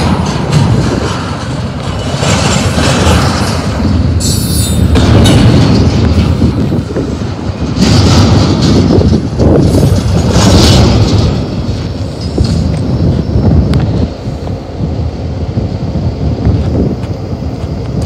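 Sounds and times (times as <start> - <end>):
freight train wheels rumbling on rail: 0.0 - 18.0.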